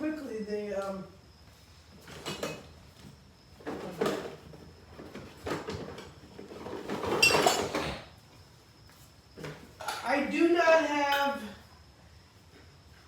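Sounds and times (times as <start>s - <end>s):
tools clattering and scraping: 3.6s - 8.0s.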